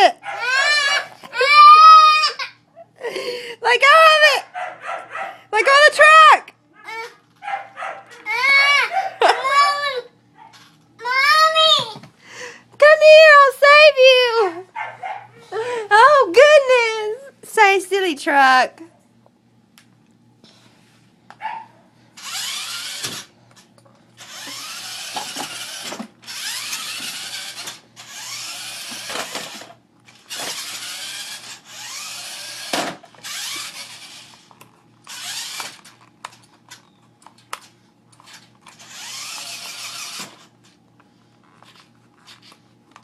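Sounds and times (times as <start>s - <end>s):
toy truck motor whirring: 0.3s - 2.6s, 8.1s - 11.7s, 22.2s - 40.8s, 41.4s - 43.0s.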